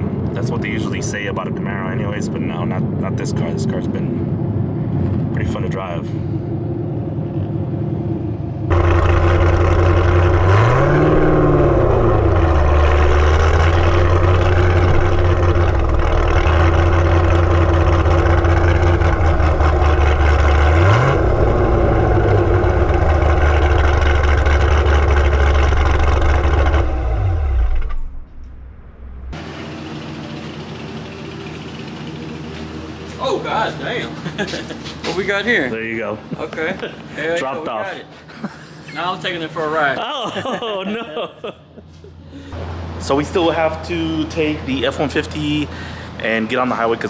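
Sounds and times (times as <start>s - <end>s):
car engine revving: 0.0s - 35.7s.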